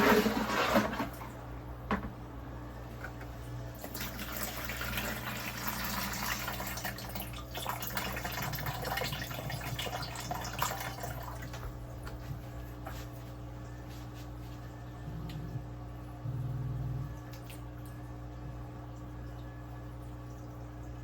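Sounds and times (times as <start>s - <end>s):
low steady hum: 0.0s - 21.0s
small crackles and drips: 6.6s - 14.3s, 17.1s - 21.0s.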